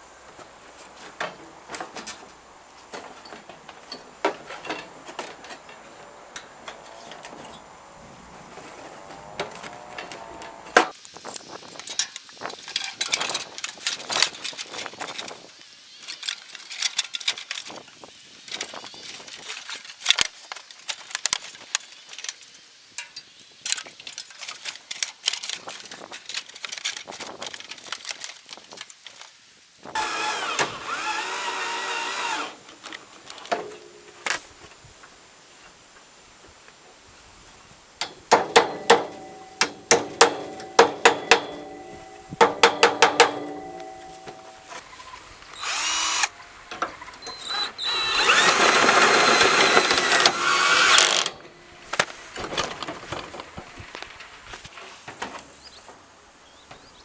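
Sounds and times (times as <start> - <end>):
clicks knocks and clatter: 10.9 - 29.4
small motor running: 29.9 - 32.5, 45.6 - 46.3, 47.4 - 51.3.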